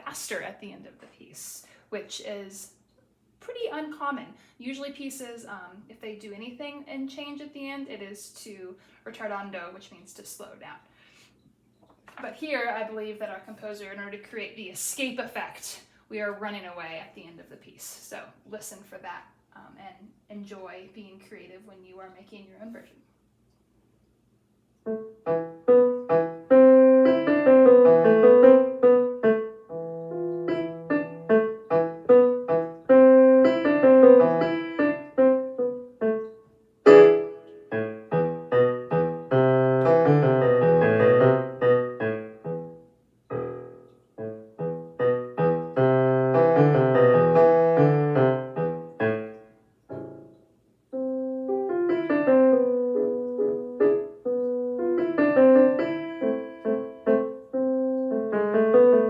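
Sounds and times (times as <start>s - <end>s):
solo piano piece: 24.8s - 59.0s.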